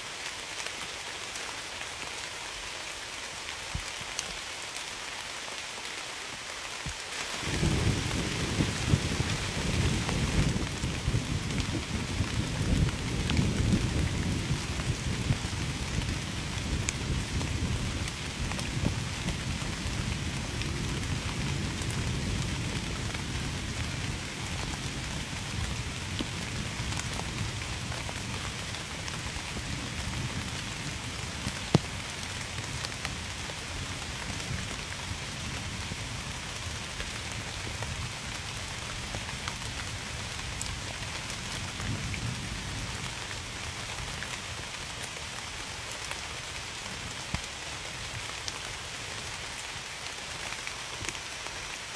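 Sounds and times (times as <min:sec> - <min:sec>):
steady rain falling: 0:00.0 - 0:51.9
low thunder rumble: 0:07.4 - 0:32.8.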